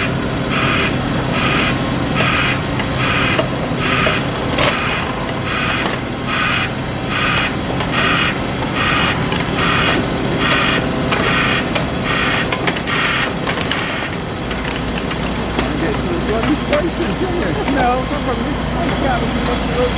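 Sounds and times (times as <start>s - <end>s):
reversing alarm beeping: 0.0s - 15.6s
diesel engine running: 0.0s - 19.9s.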